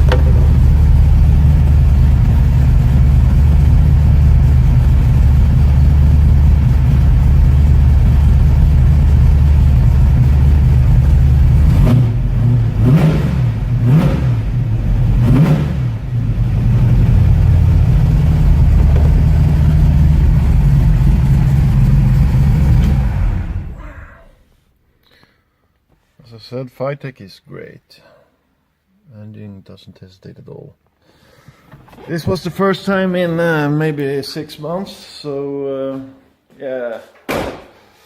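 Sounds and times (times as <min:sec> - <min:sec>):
engine revving: 0:00.0 - 0:23.8
car engine idling: 0:00.0 - 0:24.0.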